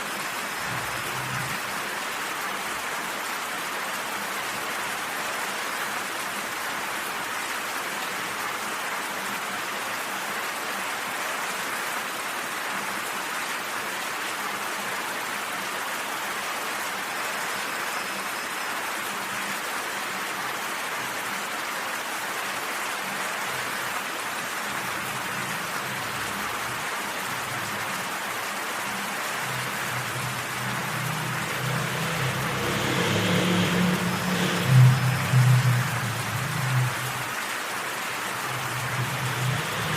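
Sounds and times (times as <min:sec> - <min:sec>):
rain falling: 0:00.0 - 0:39.9
low deep notes: 0:29.4 - 0:37.5, 0:38.2 - 0:39.9.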